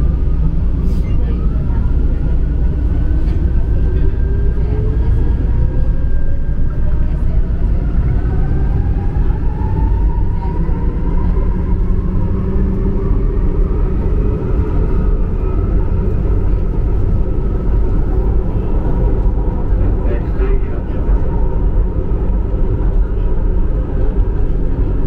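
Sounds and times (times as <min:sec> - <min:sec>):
faint train whine: 0:00.0 - 0:25.0
train wheels rumbling on track: 0:00.0 - 0:25.0.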